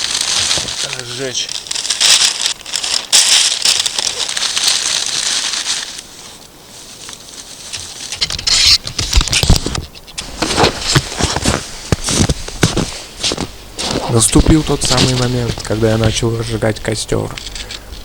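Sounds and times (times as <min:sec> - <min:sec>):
newspaper crumpling and rustling: 0:00.0 - 0:18.0
handling thumps and scuffs: 0:08.8 - 0:15.8.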